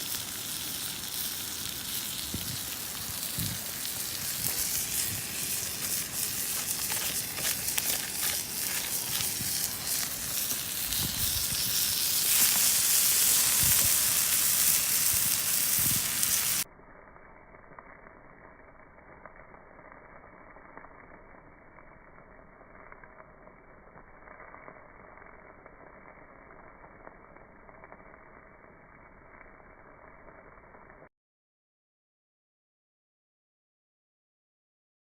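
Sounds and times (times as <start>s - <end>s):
steak sizzling in a frying pan: 0.0s - 16.7s
wood fire crackling: 0.0s - 16.7s.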